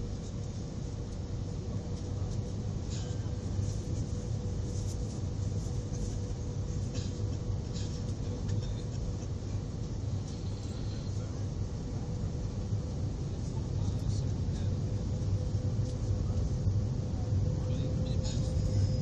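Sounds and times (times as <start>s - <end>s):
airliner engine rumble: 0.0s - 19.0s
constant hum: 0.0s - 19.0s.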